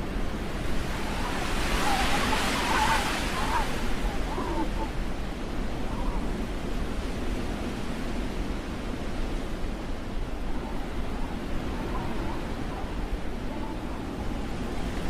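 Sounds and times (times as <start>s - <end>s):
wind blowing across microphone: 0.0s - 15.0s.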